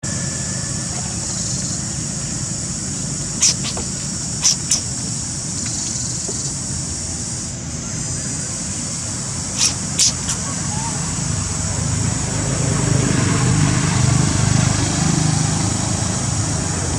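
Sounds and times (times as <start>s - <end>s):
high insect drone: 0.0s - 16.9s
short sharp high sounds: 3.4s - 3.8s, 9.6s - 10.5s.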